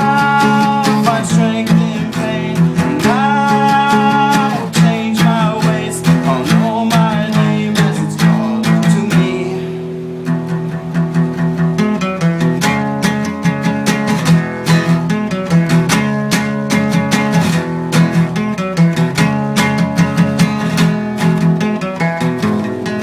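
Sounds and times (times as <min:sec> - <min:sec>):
person singing long notes: 0:00.0 - 0:10.0
acoustic guitar strumming: 0:00.0 - 0:23.0.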